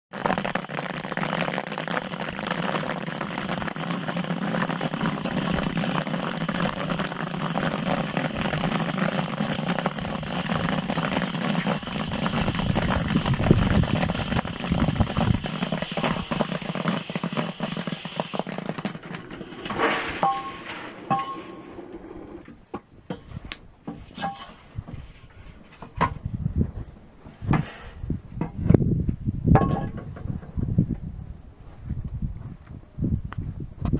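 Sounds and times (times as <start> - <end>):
popcorn kernels popping: 0.1 - 21.6
short metallic rings: 20.2 - 21.7.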